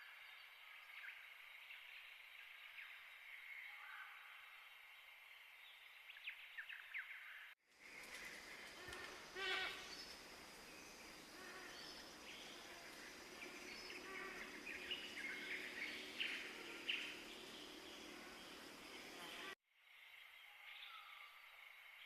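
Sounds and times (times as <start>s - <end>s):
rainforest background: 0.0s - 22.0s
birds and animals chirping: 5.7s - 21.9s.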